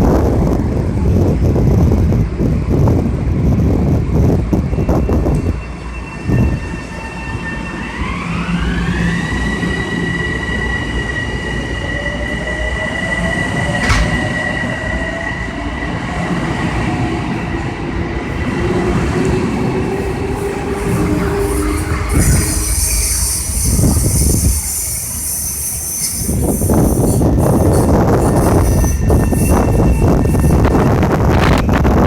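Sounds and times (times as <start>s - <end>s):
electric train rumbling: 0.0s - 32.0s
high train whine: 0.0s - 32.0s
sharp click: 13.8s - 14.5s.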